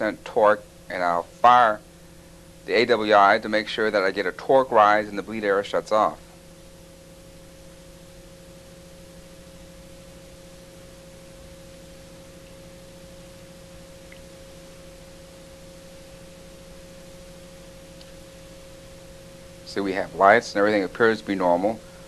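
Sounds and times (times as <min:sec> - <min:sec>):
turboprop engines humming: 0:08.1 - 0:22.0.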